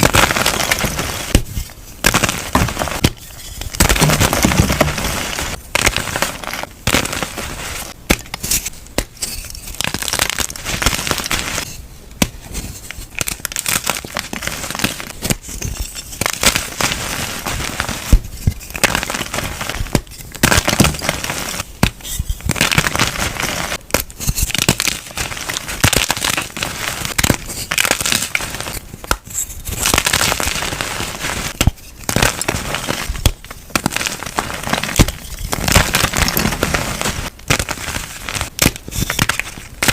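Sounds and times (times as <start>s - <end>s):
chalk being crushed: 0.0s - 39.9s.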